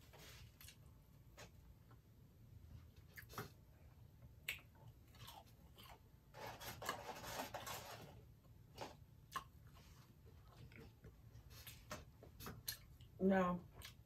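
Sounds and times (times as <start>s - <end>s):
person chewing crunchy food: 4.3s - 8.1s, 8.8s - 14.0s.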